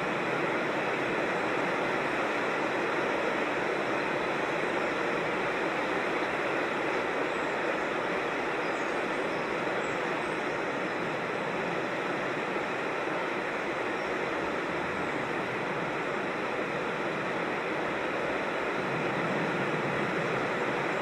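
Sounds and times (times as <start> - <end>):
creek water rushing over rocks: 0.0 - 21.0.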